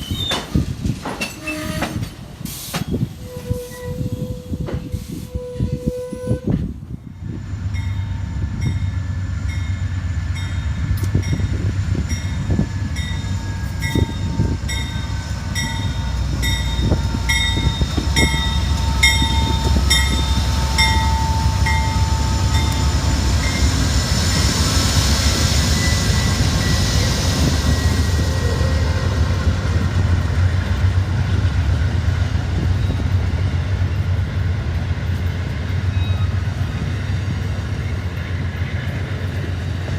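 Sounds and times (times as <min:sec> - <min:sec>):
train rumbling past: 0:00.0 - 0:39.9
bell ringing: 0:13.0 - 0:23.7.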